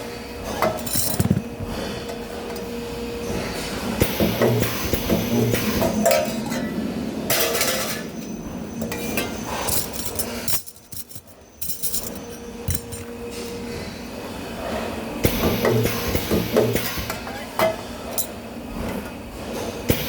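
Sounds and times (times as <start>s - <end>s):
steady hum: 0.0s - 19.6s
sheet metal clinking and clanking: 8.8s - 13.2s.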